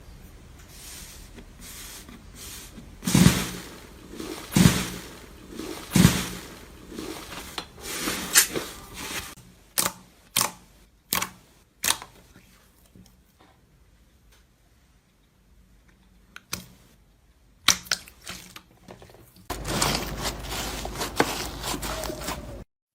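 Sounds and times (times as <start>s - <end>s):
slime squelching: 2.5s - 13.2s
slime squishing: 3.0s - 13.2s.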